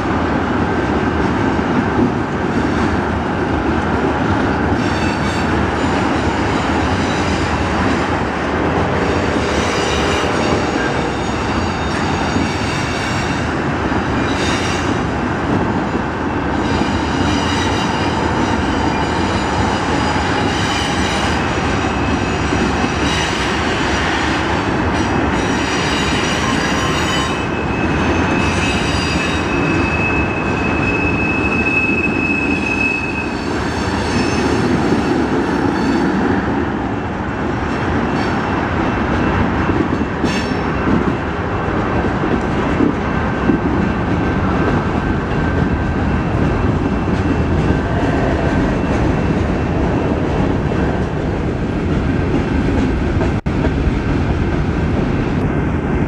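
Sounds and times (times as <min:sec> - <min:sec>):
train wheels rumbling and clattering: 0:00.0 - 0:56.0
high wheel squeal: 0:25.4 - 0:36.2.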